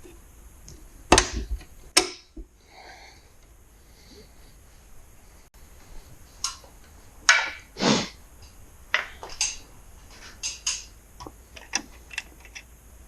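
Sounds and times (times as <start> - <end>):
hand tools clicking and knocking: 7.3 - 7.7, 8.4 - 12.7.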